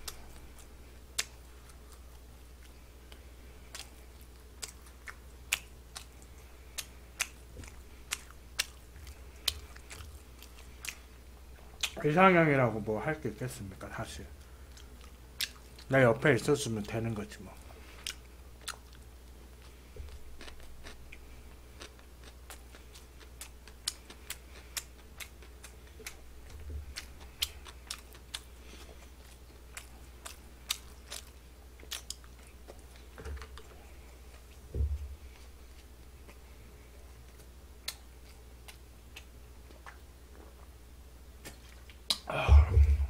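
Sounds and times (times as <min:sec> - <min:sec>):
crunchy chewing: 0:00.0 - 0:12.1, 0:14.4 - 0:15.9, 0:17.6 - 0:40.8
low steady hum: 0:00.0 - 0:43.0.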